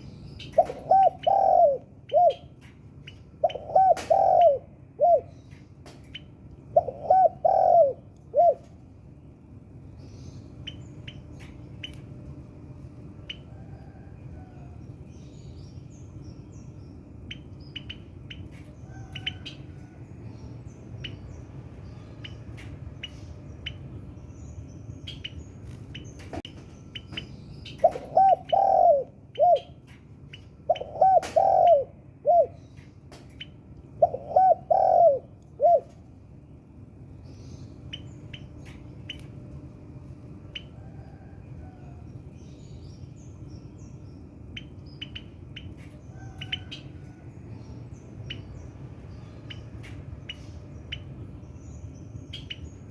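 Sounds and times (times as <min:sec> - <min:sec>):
small birds chirping: 0:00.0 - 0:12.2, 0:13.2 - 0:52.9
low background noise: 0:00.0 - 0:52.9
dove cooing: 0:00.4 - 0:02.6, 0:03.4 - 0:05.4, 0:06.7 - 0:08.8, 0:27.8 - 0:29.8, 0:30.7 - 0:32.6, 0:34.0 - 0:36.0.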